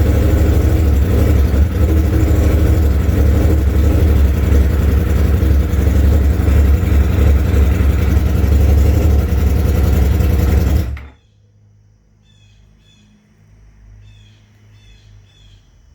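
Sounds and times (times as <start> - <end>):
motorcycle engine running: 0.0 - 11.2.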